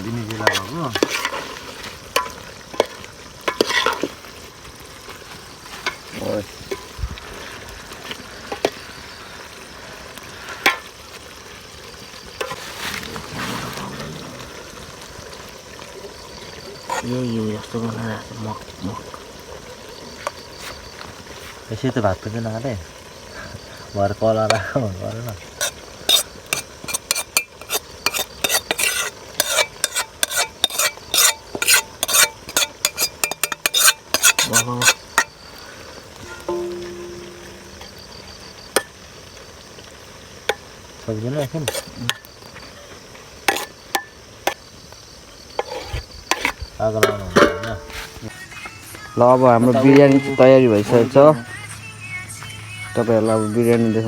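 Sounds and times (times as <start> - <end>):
food sizzling in hot oil: 0.0 - 54.0
utensil clinking against pot: 25.6 - 35.3, 36.2 - 38.0, 45.6 - 48.1.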